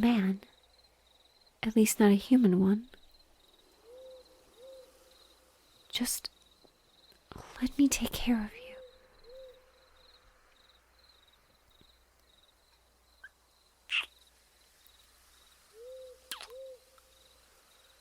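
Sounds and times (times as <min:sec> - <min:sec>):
faint cricket chirping: 0:00.0 - 0:18.0
owl hooting softly: 0:03.8 - 0:05.5, 0:08.6 - 0:10.2, 0:13.2 - 0:14.2, 0:15.5 - 0:17.7.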